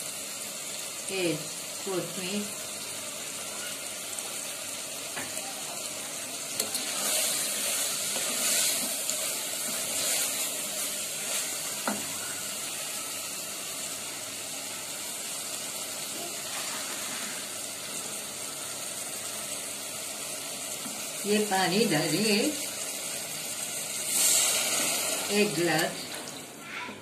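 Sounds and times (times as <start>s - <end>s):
food sizzling in a pot: 0.0s - 26.8s
wooden spoon stirring: 6.5s - 12.2s.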